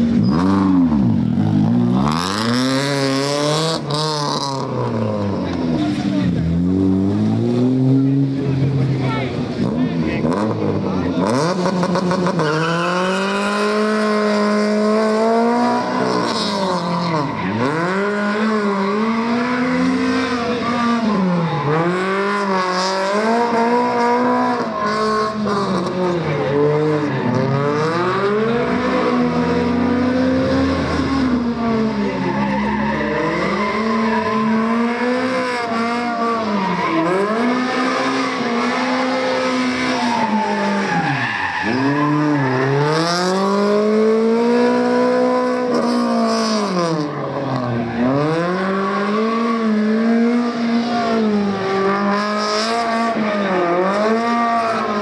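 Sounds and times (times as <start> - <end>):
car engine accelerating: 0.0 - 55.0
tyres squealing: 36.4 - 43.4.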